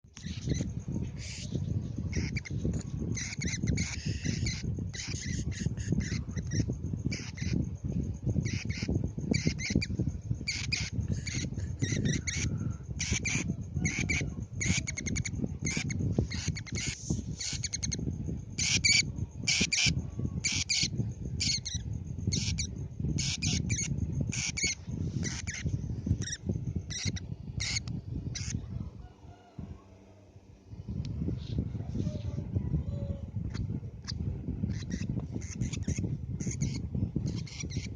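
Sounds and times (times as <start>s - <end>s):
steady low rumble: 0.0s - 37.9s
bird squawking: 2.1s - 2.5s, 8.5s - 9.9s, 10.5s - 18.0s, 26.2s - 27.8s, 34.7s - 37.9s.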